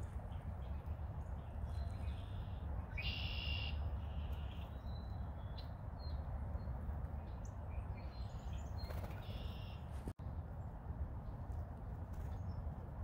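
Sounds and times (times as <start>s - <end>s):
faint short bird chirps: 8.8s - 9.9s.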